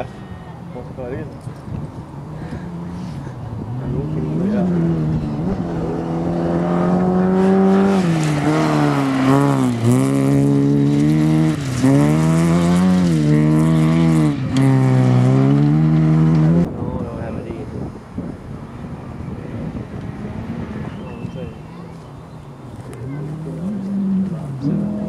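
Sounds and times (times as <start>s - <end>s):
rally car engine at high revs: 2.5s - 16.7s, 23.0s - 25.0s.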